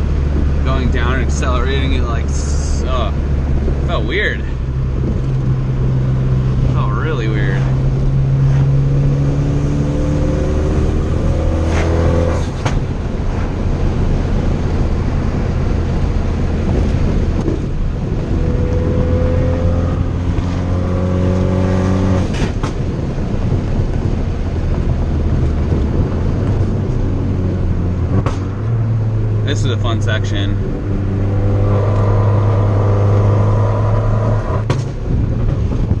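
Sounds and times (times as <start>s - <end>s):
car engine revving hard: 3.7s - 12.8s, 18.1s - 22.6s, 27.7s - 34.7s.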